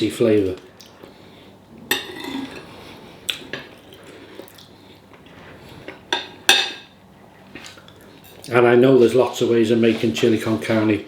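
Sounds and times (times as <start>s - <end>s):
cutlery clinking on a plate: 1.9s - 2.7s.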